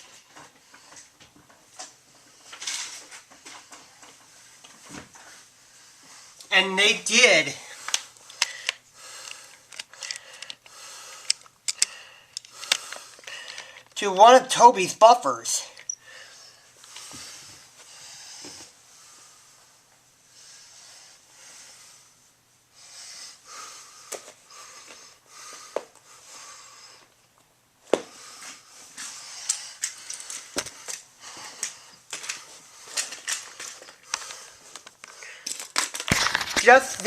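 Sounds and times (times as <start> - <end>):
toy train props rustling: 7.9 - 14.0, 29.4 - 37.0.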